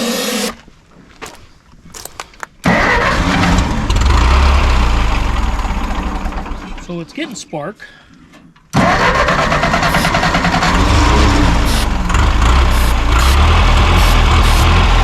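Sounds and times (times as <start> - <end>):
tractor engine starting and running: 2.6 - 7.4, 8.7 - 15.0.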